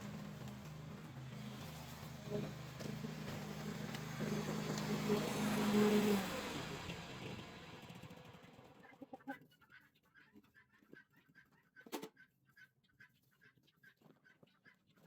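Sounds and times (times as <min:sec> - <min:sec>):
garden machine motor: 0:00.0 - 0:08.9.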